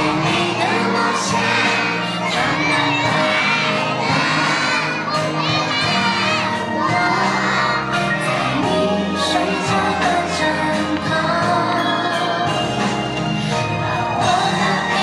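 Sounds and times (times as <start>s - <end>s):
crowd cheering: 0.0s - 10.3s
children shouting and singing: 0.0s - 12.8s
music: 0.0s - 15.0s.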